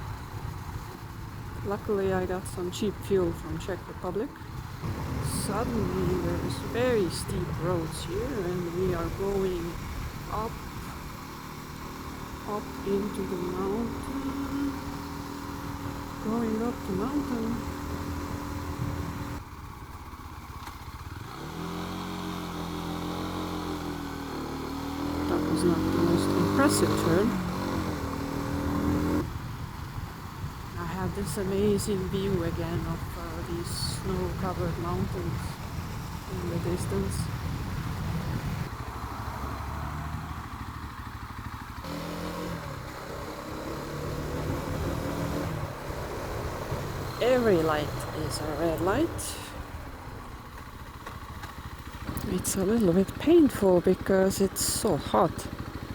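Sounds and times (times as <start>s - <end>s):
motorcycle engine: 0.0s - 55.9s
road and wind noise: 0.0s - 55.9s
wind noise: 29.2s - 38.8s.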